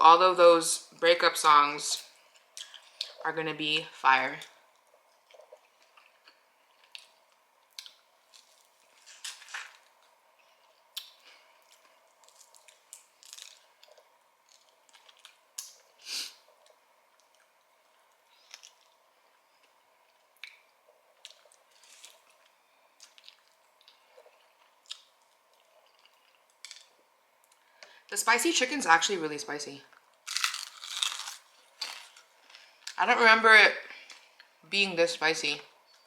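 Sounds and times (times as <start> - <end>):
person chewing crispy food: 4.7 - 27.7, 30.1 - 33.0.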